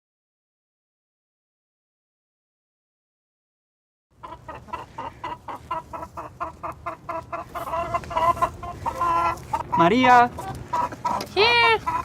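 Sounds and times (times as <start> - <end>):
chickens clucking: 4.2 - 12.0.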